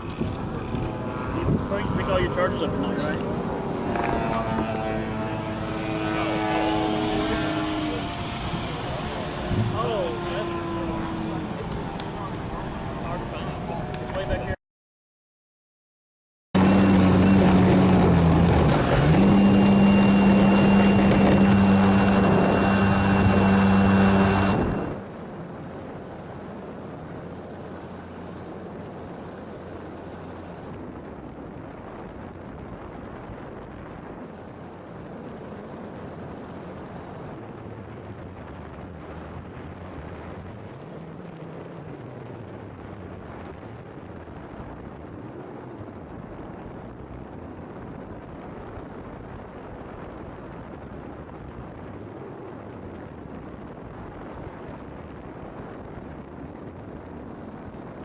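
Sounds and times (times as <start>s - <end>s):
faint distant engine drone: 0.0s - 14.6s, 16.6s - 58.0s
model airplane engine running: 0.1s - 14.4s, 16.6s - 25.0s.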